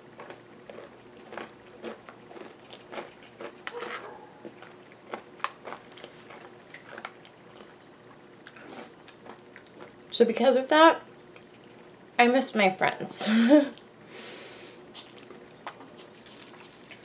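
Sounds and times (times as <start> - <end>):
chewing and crunching granola: 0.0 - 10.2, 14.9 - 17.0.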